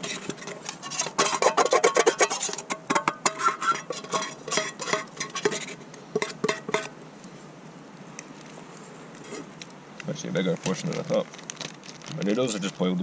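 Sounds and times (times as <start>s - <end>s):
metal utensil scraping a pan: 0.0s - 7.0s, 9.2s - 9.5s.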